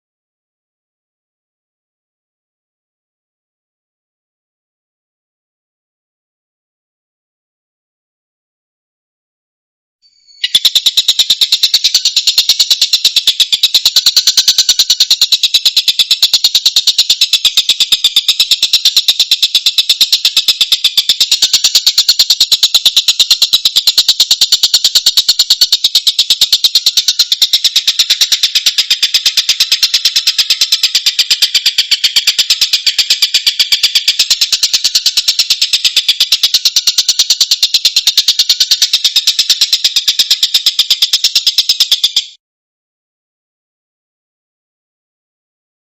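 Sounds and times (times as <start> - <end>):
bird rattling chatter: 10.4 - 42.3.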